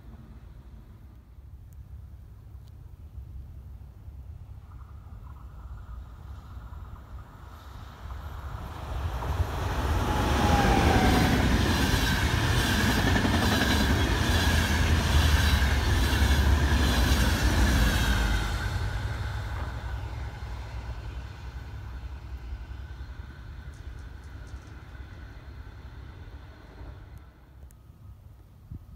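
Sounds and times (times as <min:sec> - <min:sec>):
train high whine: 0:05.5 - 0:27.7
train wheels clattering on rails: 0:09.1 - 0:20.1, 0:23.6 - 0:25.5.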